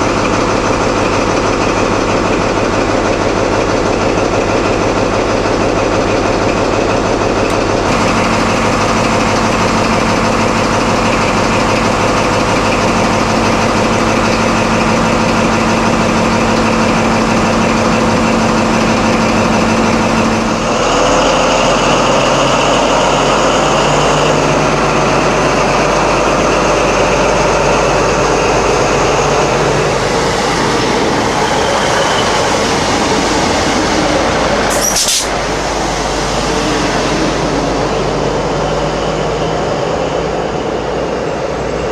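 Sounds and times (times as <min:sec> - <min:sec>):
train diesel engine running: 0:00.0 - 0:41.9.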